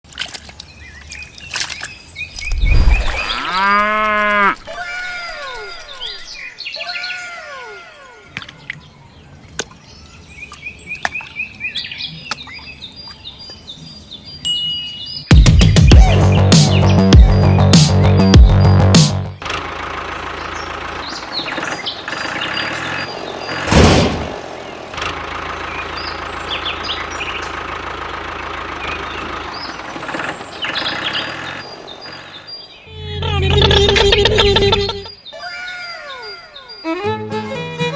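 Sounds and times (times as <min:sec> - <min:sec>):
birds chirping: 0:00.4 - 0:37.9
bird call sliding in pitch: 0:02.4 - 0:08.4
engine running steadily: 0:18.9 - 0:35.0.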